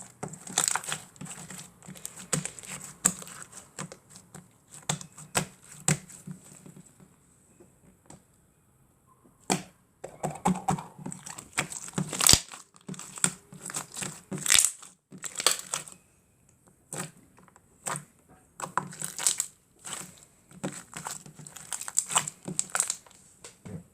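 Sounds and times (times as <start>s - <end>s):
slime crackling and popping: 0.0s - 6.2s, 10.4s - 15.9s, 17.8s - 23.1s.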